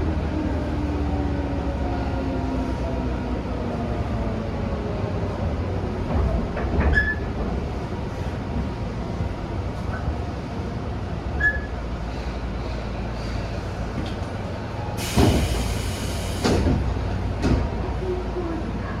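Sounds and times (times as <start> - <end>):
electric train rumbling: 0.0 - 19.0
wheel or brake squeal: 6.9 - 7.2, 11.4 - 11.8.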